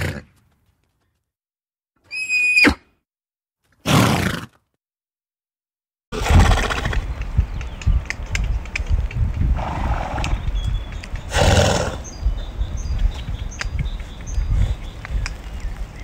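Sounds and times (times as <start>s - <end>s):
horses snorting: 6.2s - 7.1s, 9.4s - 10.6s, 11.2s - 12.2s
faint birds chirping: 6.9s - 16.0s.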